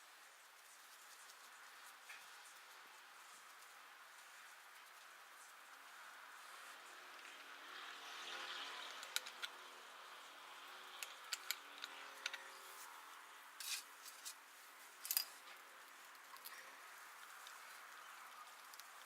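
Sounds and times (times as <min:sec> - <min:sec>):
hand tools and metal parts clinking: 0:11.0 - 0:12.9, 0:13.6 - 0:16.7.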